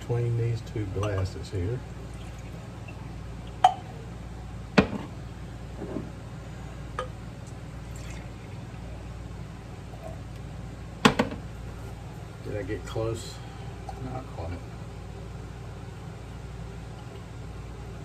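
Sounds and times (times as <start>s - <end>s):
steady low hum: 0.0s - 18.0s
liquid pouring and dripping: 1.9s - 4.0s, 7.4s - 8.6s.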